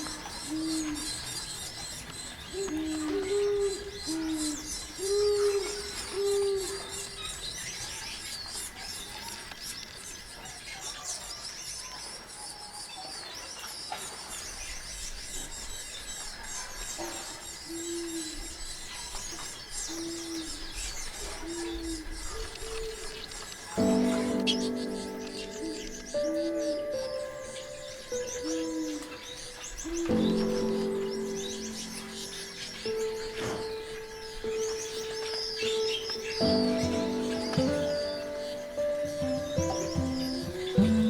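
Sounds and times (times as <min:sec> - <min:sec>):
finches chirping and twittering: 0:00.0 - 0:41.0
low hooting notes: 0:23.8 - 0:41.0.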